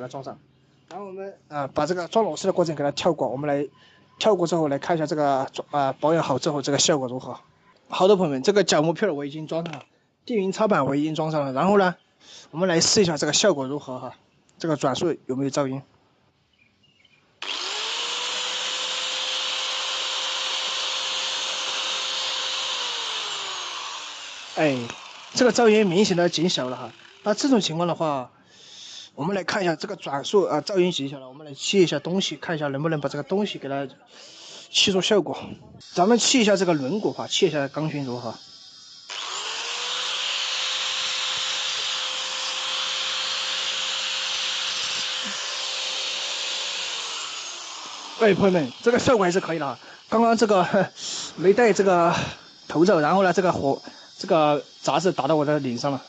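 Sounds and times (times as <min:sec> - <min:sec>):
angle grinder whining: 0:17.4 - 0:27.9, 0:35.8 - 0:56.0.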